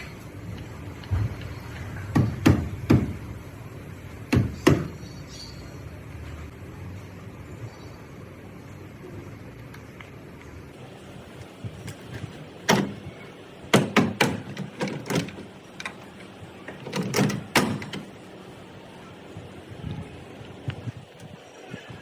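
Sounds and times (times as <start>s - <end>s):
sharp knocks: 13.7s - 15.4s.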